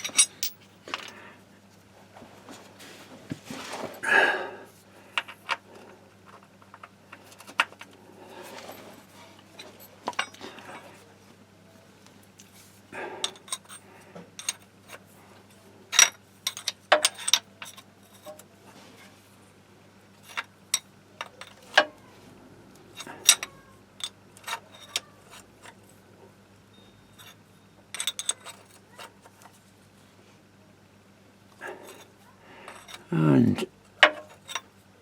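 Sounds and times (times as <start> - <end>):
metal tools clinking: 0.0 - 1.2, 9.6 - 10.9, 13.2 - 13.8, 14.4 - 15.0, 15.9 - 18.4, 20.2 - 22.0, 23.0 - 25.8, 27.1 - 29.4, 31.6 - 33.1, 34.0 - 34.7.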